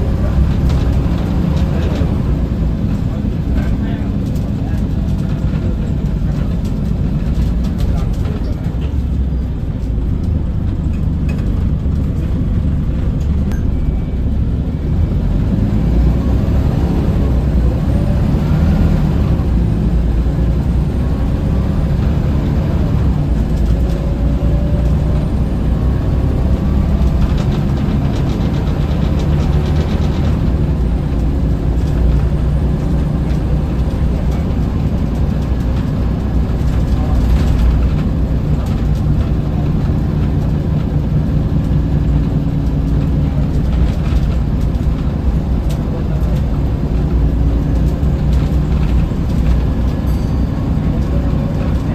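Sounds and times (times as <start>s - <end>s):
bus engine deep rumble: 0.0s - 51.9s
faint whine: 13.4s - 15.2s.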